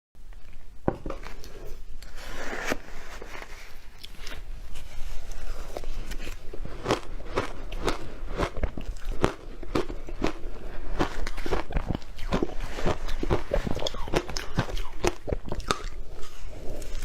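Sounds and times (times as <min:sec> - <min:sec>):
chewing crunchy powder: 0:05.1 - 0:17.0.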